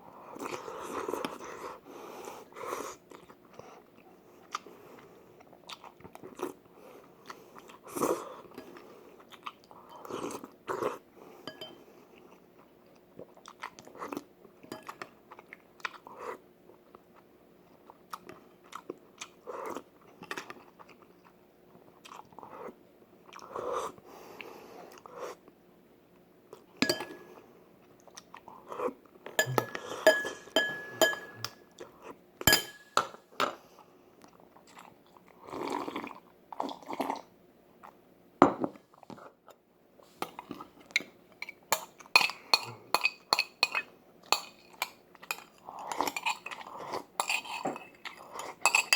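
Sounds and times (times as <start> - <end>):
person chewing food: 3.0 - 6.6, 7.2 - 11.0, 11.6 - 16.2, 17.8 - 23.5.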